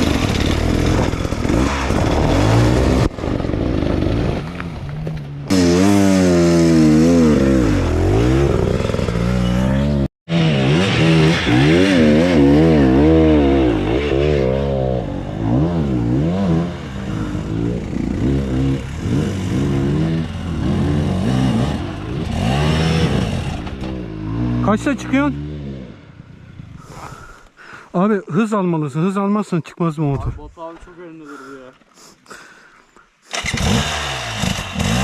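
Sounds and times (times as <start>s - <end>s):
dirt bike engine revving: 0.0s - 4.6s, 5.5s - 26.4s, 33.3s - 35.0s.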